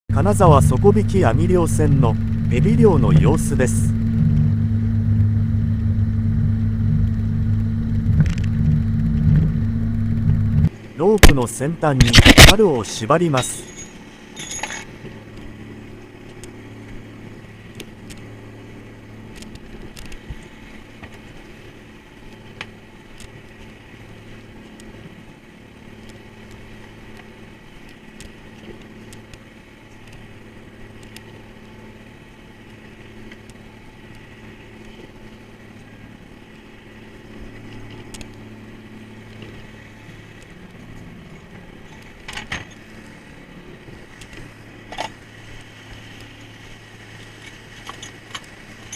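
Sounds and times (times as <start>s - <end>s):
boat engine droning: 0.1s - 48.9s
faint clicks and knocks: 30.9s - 31.4s, 37.7s - 38.5s.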